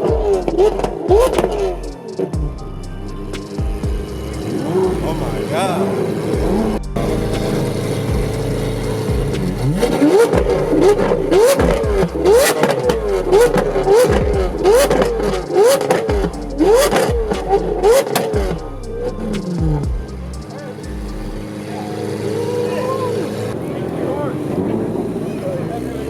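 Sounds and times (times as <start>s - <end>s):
car engine idling: 0.0s - 26.0s
engine revving in quick blips: 6.4s - 18.5s.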